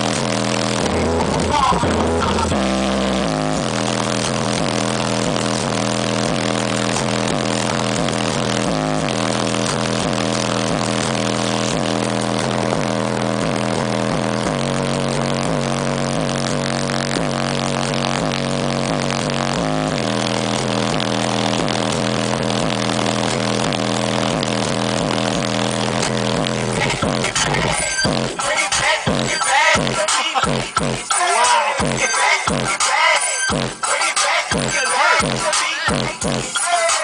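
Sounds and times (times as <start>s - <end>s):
hip-hop track with heavy bass: 0.0s - 37.0s.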